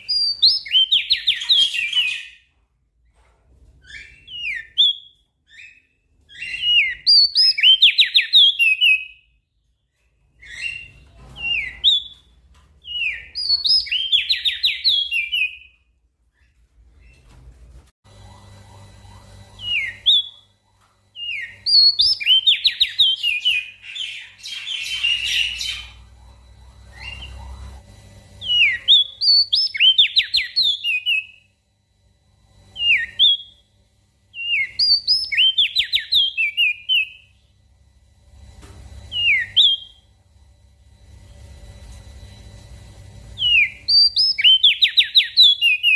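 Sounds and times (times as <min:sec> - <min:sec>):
faint low hum: 0:00.0 - 0:45.9
bird singing whistled notes: 0:43.4 - 0:45.9.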